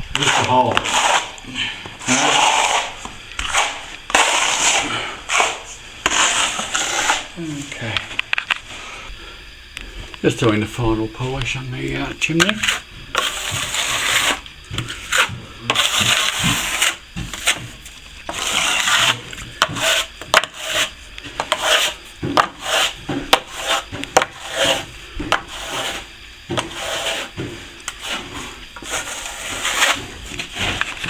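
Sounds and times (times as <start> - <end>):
trowel scraping over plaster: 0.0 - 7.4, 12.4 - 31.0.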